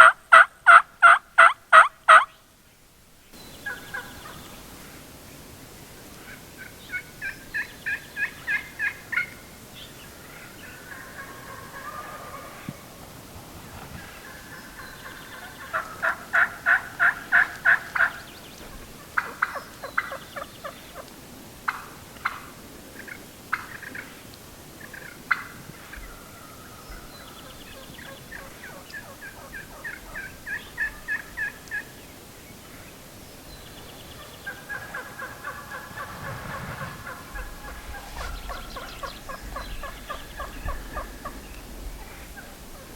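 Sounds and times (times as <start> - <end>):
turkey clucks: 0.0 - 2.3, 3.6 - 4.4, 6.3 - 9.4, 10.2 - 12.8, 14.0 - 21.1, 21.7 - 24.2, 24.8 - 32.0, 34.1 - 42.9
turkey yelping: 0.0 - 2.3, 10.6 - 12.6, 27.7 - 31.9, 34.2 - 36.2.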